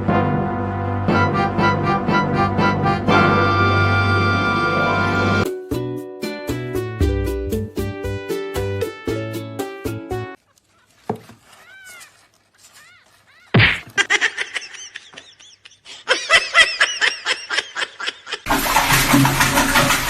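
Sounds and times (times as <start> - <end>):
person laughing: 13.2 - 18.5.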